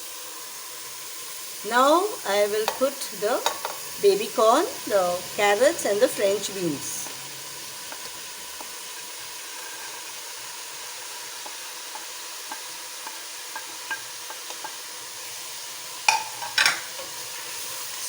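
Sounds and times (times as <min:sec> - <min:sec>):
vegetables sizzling in oil: 0:00.0 - 0:18.0
spoon clicking against pan: 0:11.4 - 0:14.8.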